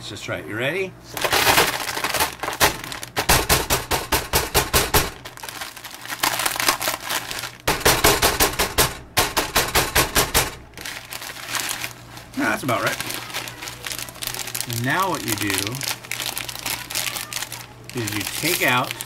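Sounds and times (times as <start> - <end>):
dry noodles crunching in bag: 1.1 - 3.3, 5.3 - 7.7, 10.8 - 19.0.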